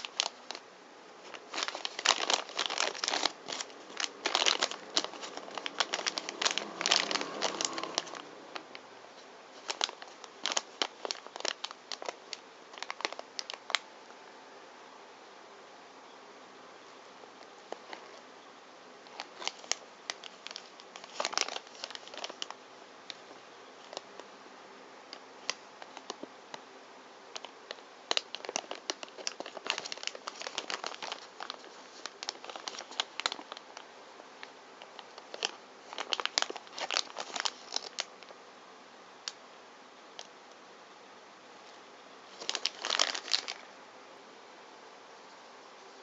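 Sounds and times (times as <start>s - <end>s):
plastic wrapping crinkling: 0.0s - 13.9s, 17.4s - 18.2s, 19.0s - 24.2s, 25.1s - 26.3s, 27.3s - 38.4s, 41.6s - 43.7s.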